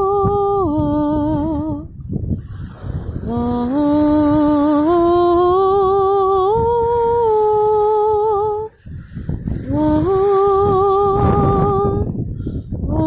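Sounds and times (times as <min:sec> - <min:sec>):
low rushing noise: 0:01.5 - 0:13.0
woman humming: 0:09.7 - 0:12.0.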